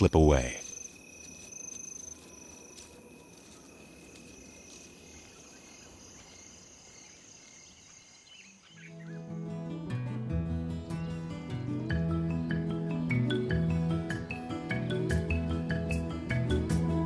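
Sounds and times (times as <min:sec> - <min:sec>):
crickets chirping: 0:00.0 - 0:09.8
soft music: 0:08.9 - 0:17.0.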